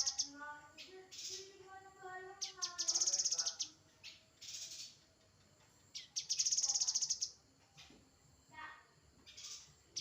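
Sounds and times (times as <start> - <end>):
songbird buzzy trill: 0.0 - 1.6, 2.4 - 5.0.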